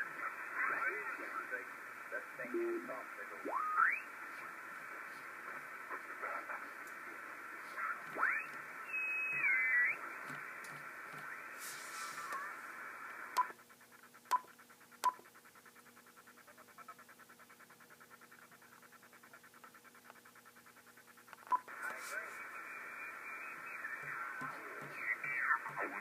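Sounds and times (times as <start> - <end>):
fast pulsing radio noise: 0.0 - 26.0
radio receiver hiss: 0.0 - 26.0.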